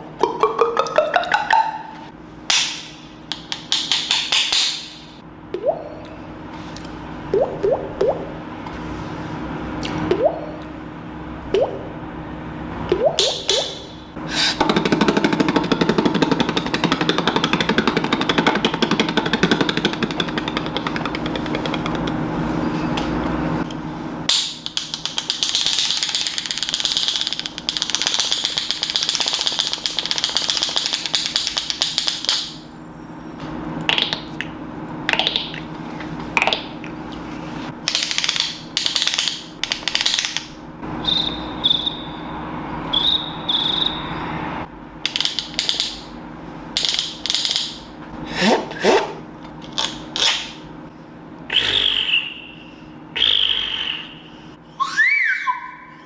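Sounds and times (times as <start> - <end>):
low hum: 5.2 - 6.5, 7.1 - 14.3.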